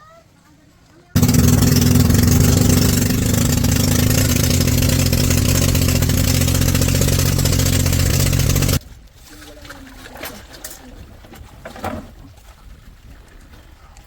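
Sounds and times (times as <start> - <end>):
small engine running: 1.2 - 8.8.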